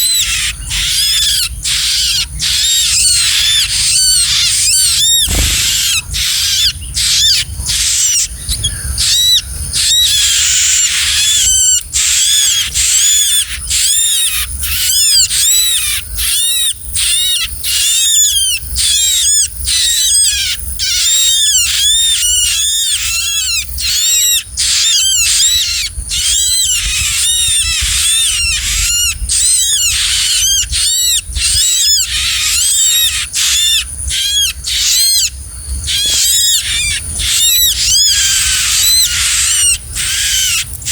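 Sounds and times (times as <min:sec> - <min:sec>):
songbird chirping rapidly: 0:00.0 - 0:40.9.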